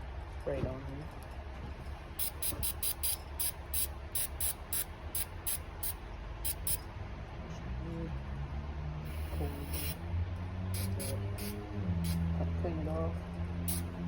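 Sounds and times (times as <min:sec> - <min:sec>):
aerosol spray hisses: 0:02.2 - 0:06.8, 0:09.1 - 0:10.0, 0:10.8 - 0:12.2, 0:13.7 - 0:13.9.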